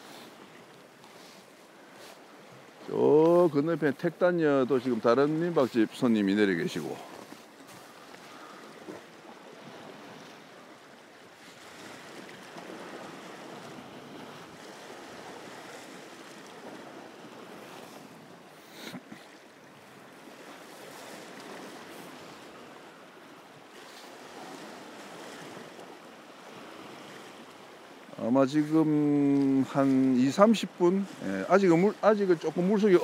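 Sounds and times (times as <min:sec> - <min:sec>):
waves washing against rocks: 0:02.8 - 0:09.1, 0:23.8 - 0:33.0.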